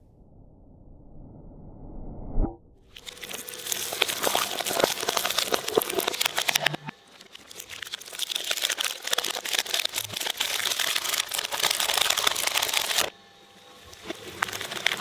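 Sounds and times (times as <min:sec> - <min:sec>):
shredder crunching material: 0:02.9 - 0:15.0.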